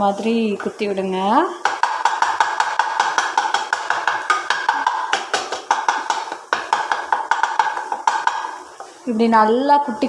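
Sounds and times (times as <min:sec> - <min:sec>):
metal spatula clanging in pan: 0:01.6 - 0:08.9.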